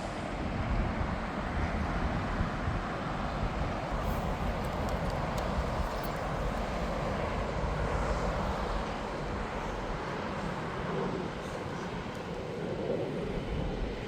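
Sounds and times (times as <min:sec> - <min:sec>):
jet engines rushing: 0:00.0 - 0:14.0.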